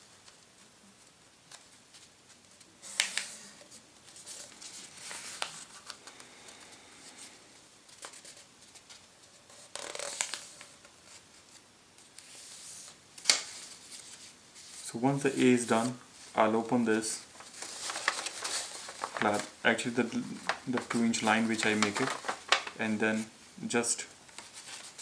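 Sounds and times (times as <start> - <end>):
paper being folded and creased: 0.0 - 7.3, 7.9 - 16.5, 17.2 - 23.2, 24.3 - 25.0.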